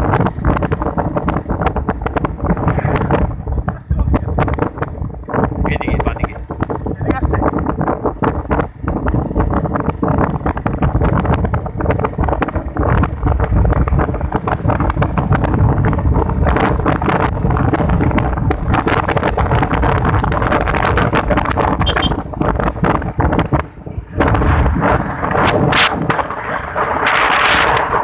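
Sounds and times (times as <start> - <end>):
motorcycle engine running: 0.0 - 28.0
wind buffeting microphone: 0.0 - 28.0.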